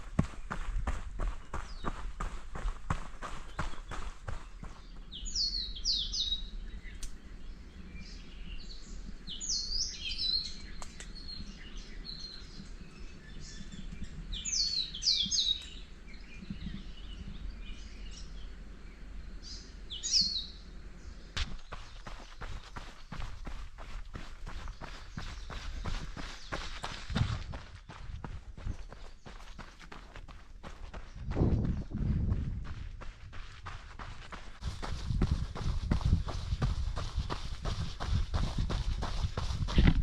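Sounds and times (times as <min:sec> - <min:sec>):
running footsteps on trail: 0:00.0 - 0:06.2, 0:21.4 - 0:40.0
songbirds chirping: 0:00.0 - 0:40.0.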